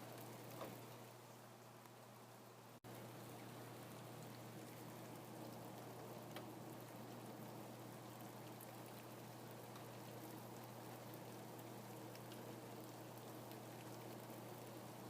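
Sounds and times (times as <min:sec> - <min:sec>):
faint rainfall: 0:00.0 - 0:15.0.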